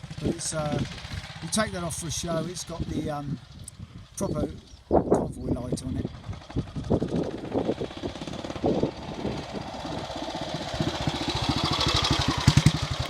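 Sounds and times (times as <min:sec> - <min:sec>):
single-cylinder engine thumping: 0:06.1 - 0:13.0.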